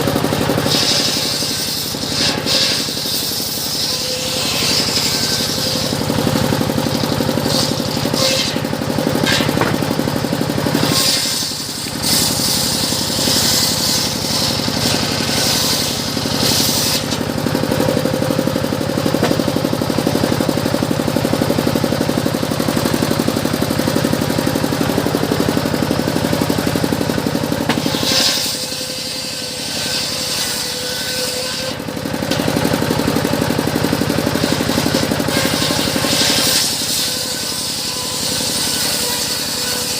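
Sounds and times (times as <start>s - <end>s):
sawmill drone: 0.0s - 39.9s
saw blade hissing through wood: 0.6s - 9.8s, 10.7s - 17.2s, 27.7s - 31.8s, 34.4s - 39.9s.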